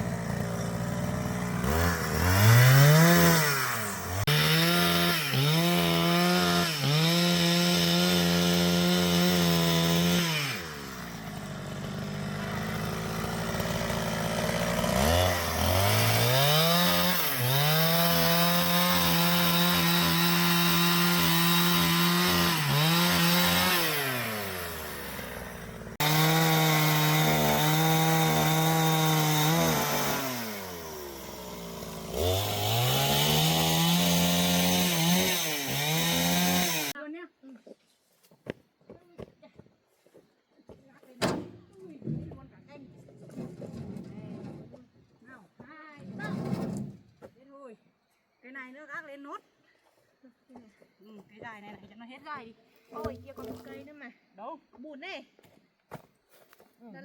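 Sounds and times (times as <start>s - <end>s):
chainsaw cutting through log: 0.0s - 37.0s.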